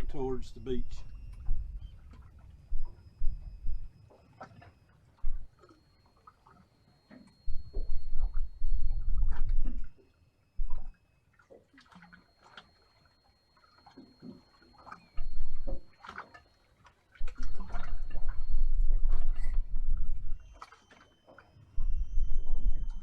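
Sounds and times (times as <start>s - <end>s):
water lapping against boat hull: 0.0s - 23.0s.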